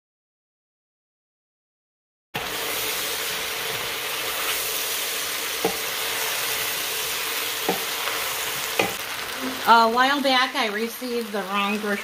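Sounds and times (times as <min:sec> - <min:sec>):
food sizzling in a pot: 0:02.4 - 0:12.0
wooden spoon knocks: 0:08.8 - 0:09.0.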